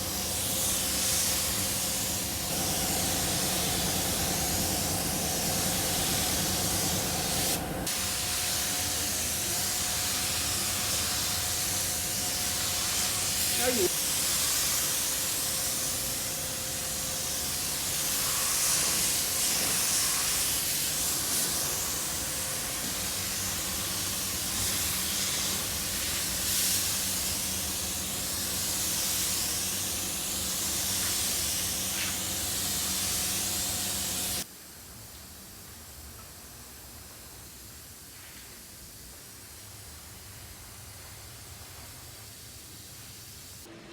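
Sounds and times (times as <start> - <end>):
spray gun hissing: 0.0 - 34.5.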